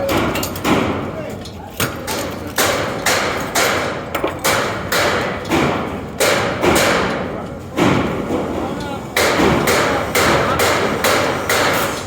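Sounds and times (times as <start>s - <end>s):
hard sharp knocks: 2.6s - 8.2s, 9.2s - 12.0s.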